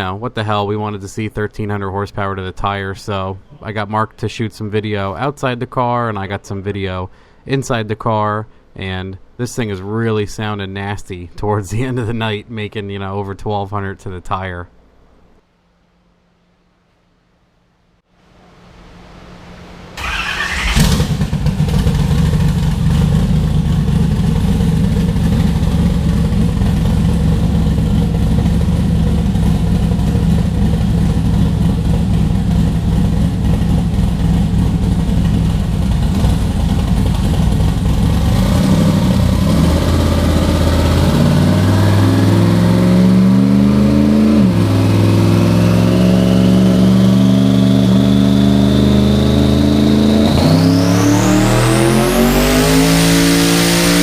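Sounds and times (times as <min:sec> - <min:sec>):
race engine revving on dyno: 0:20.0 - 0:54.0.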